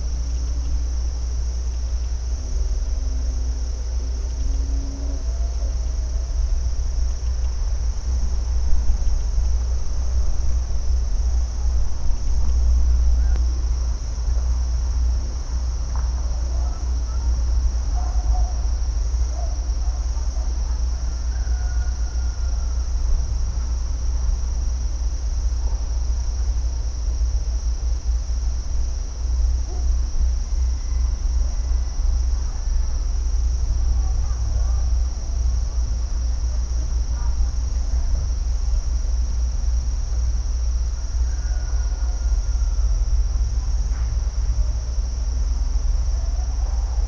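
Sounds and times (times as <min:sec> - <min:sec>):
low rumble: 0:00.0 - 0:19.3
insect chorus: 0:00.0 - 0:47.0.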